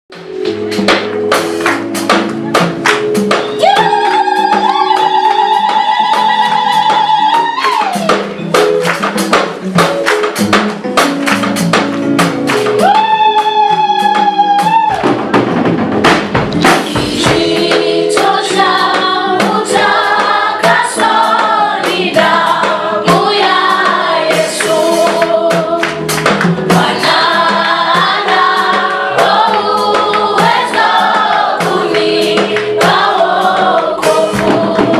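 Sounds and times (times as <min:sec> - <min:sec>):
percussion beat: 0:00.1 - 0:34.9
choir singing in harmony: 0:16.8 - 0:26.0, 0:26.6 - 0:34.9.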